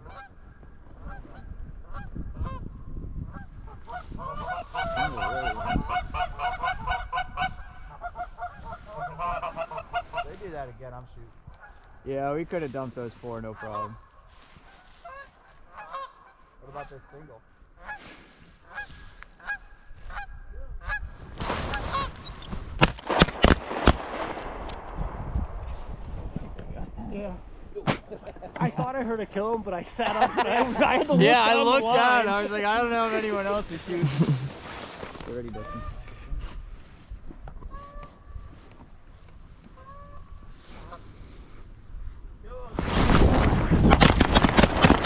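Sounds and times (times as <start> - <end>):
geese honking: 0.0 - 0.3, 3.3 - 10.4, 13.5 - 17.1, 17.7 - 21.1, 21.7 - 22.3, 35.5 - 36.0, 37.7 - 38.2, 39.7 - 41.1
shotgun shots: 22.8 - 25.8.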